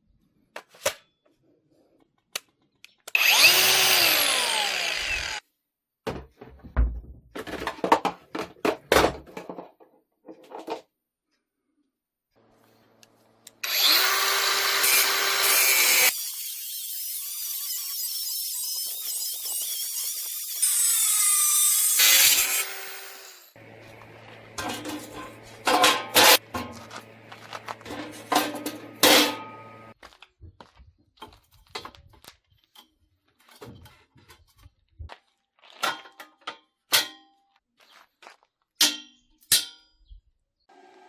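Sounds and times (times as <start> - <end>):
high-pitched power tool: 3.1 - 5.4, 13.5 - 30.0
metal knocks and clatter: 6.1 - 9.8, 24.5 - 27.0, 27.7 - 29.6.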